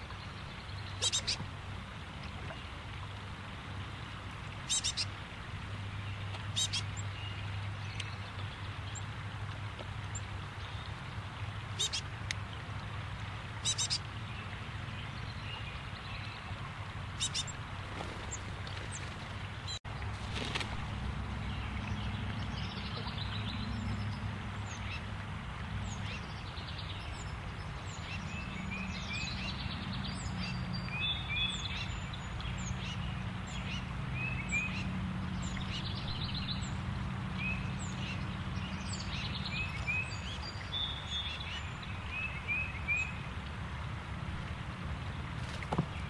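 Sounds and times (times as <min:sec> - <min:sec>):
birds chirping and trilling: 0:00.2 - 0:01.4, 0:04.6 - 0:05.2, 0:06.1 - 0:09.1, 0:11.8 - 0:12.1, 0:13.6 - 0:16.4, 0:17.1 - 0:19.8.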